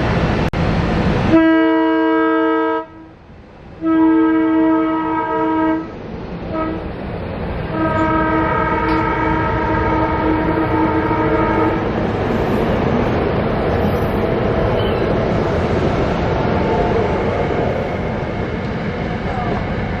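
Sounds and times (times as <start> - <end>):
train rumbling past: 0.0 - 20.0
train horn blasts: 1.3 - 3.2, 3.8 - 6.9, 7.7 - 12.0.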